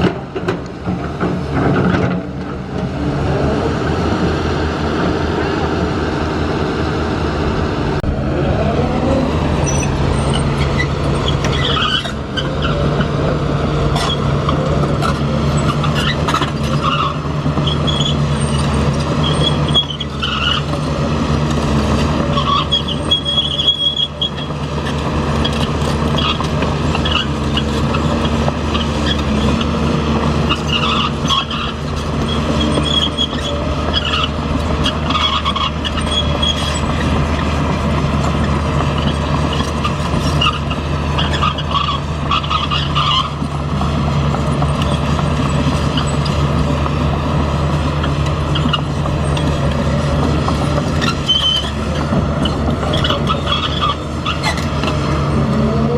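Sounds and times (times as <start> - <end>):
engine running: 0.0 - 55.9
high-pitched squeals: 8.0 - 13.2, 48.0 - 55.9.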